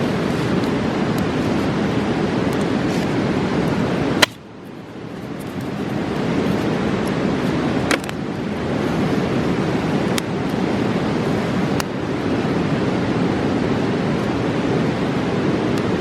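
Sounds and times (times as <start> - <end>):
river rushing: 0.0 - 16.0
sharp pops: 4.2 - 4.4.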